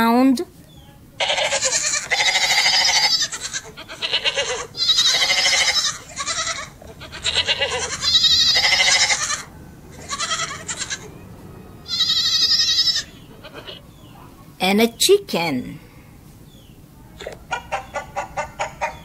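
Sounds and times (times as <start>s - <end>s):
goat bleating: 1.2s - 11.2s, 11.8s - 14.0s.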